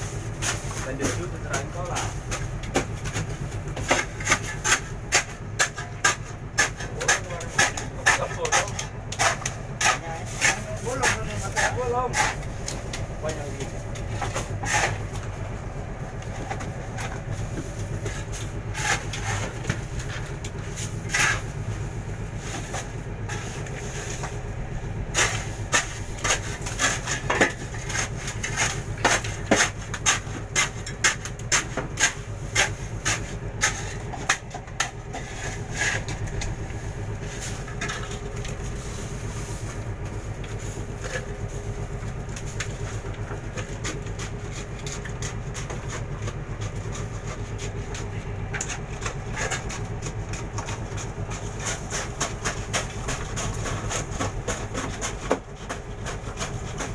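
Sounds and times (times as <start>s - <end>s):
boat engine humming: 0.0s - 56.9s.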